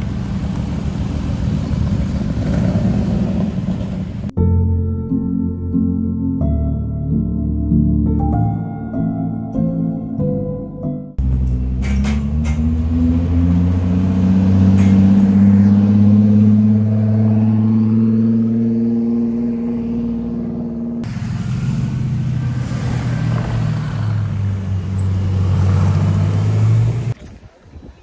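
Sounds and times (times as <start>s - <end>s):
car engines droning: 0.0s - 4.3s, 11.2s - 27.2s.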